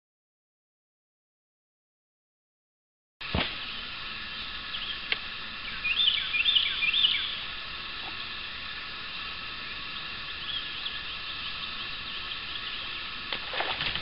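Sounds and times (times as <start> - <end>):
steady outdoor hum: 3.2 - 14.0
songbird whistling: 5.6 - 7.4, 9.9 - 13.2.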